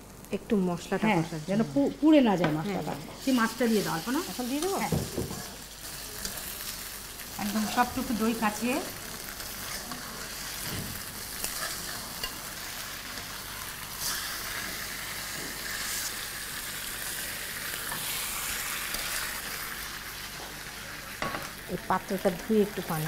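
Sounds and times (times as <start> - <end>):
fish sizzling in hot oil: 0.0 - 23.0
spatula scraping in pan: 9.2 - 16.5.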